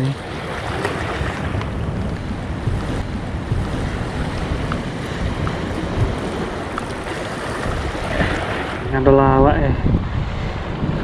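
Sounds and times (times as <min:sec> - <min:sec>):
sea waves on breakwater: 0:00.0 - 0:11.0
wind buffeting microphone: 0:00.0 - 0:11.0.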